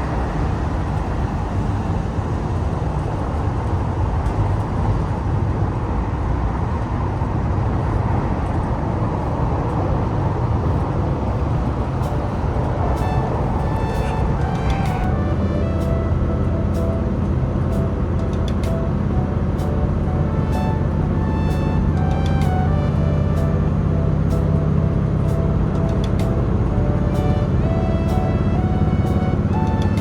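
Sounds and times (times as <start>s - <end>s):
train rumbling at speed: 0.0s - 30.0s
faint music: 7.9s - 30.0s.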